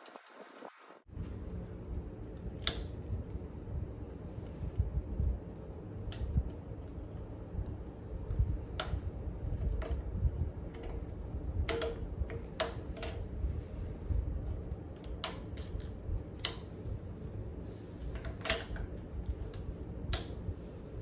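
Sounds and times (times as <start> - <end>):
low steady rumble: 1.0 - 21.0
sharp clicks and light knocks: 15.0 - 16.7.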